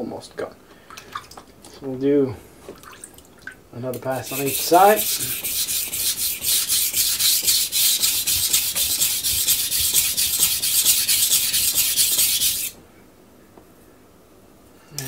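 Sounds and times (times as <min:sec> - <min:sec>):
knife sharpening on wet stone: 0:04.2 - 0:12.7.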